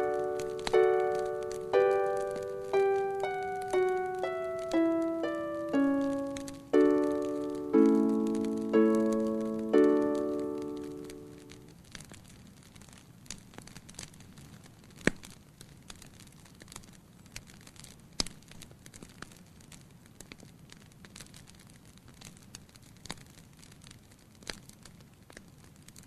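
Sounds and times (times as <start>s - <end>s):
wood fire crackling: 0.0s - 26.0s
sharp fire pops: 10.8s - 26.0s.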